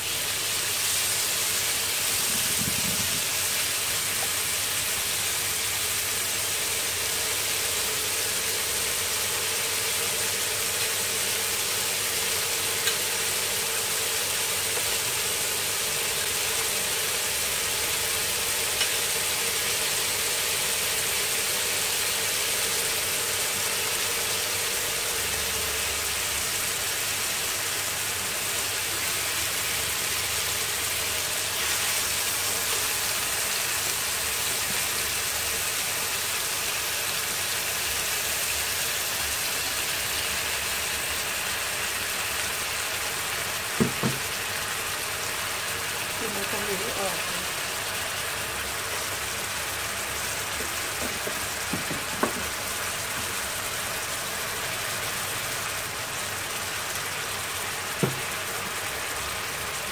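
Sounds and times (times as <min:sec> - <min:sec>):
food sizzling in a wok: 0:00.0 - 0:59.9
spatula taps: 0:50.6 - 0:52.5, 0:58.0 - 0:58.3.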